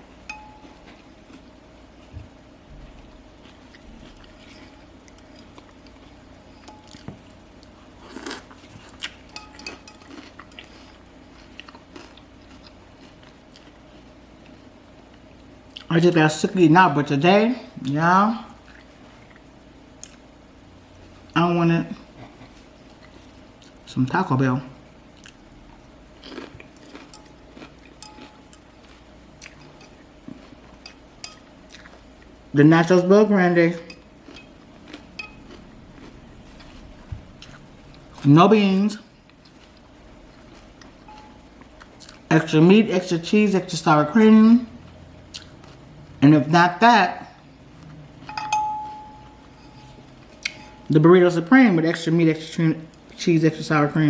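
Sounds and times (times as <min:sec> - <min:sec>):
person chewing crunchy food: 0:02.9 - 0:15.9, 0:25.1 - 0:32.3, 0:34.0 - 0:38.3, 0:39.2 - 0:42.3, 0:45.3 - 0:46.0.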